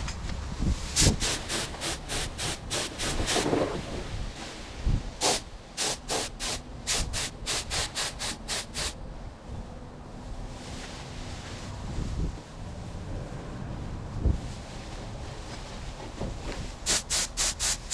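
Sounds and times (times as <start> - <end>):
paint spray gun hissing: 1.0 - 3.7, 5.2 - 9.0, 16.8 - 17.9.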